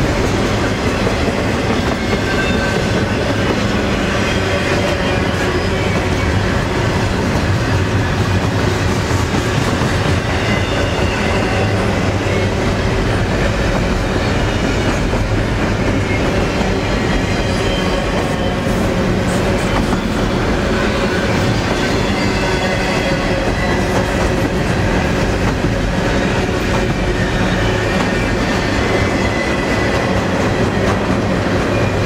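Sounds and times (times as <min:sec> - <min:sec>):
freight train wheels rumbling: 0:00.0 - 0:32.0.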